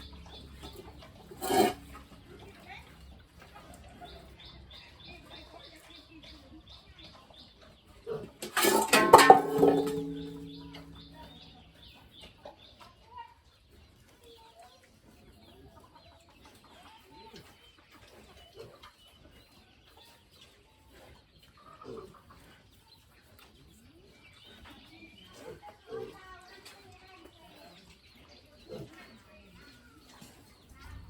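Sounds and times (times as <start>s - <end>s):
small birds chirping: 0.0s - 8.4s, 9.1s - 31.0s
chickens clucking: 0.0s - 12.4s.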